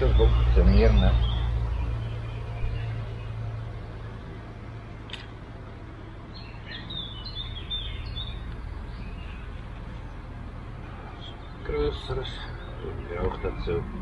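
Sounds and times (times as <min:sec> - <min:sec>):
bird chirping: 0:00.0 - 0:14.0
single click: 0:05.1 - 0:05.4.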